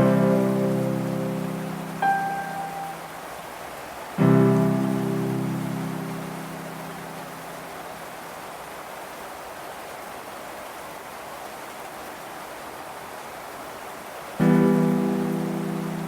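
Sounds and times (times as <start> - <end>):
held music note: 0.0 - 3.1
steady rain hiss: 0.0 - 16.0.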